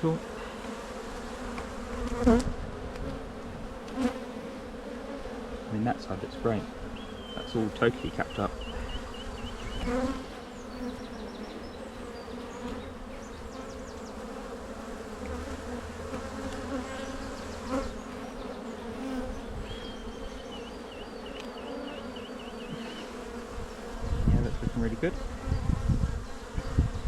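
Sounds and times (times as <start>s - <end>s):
honey bees buzzing: 0.0s - 27.0s.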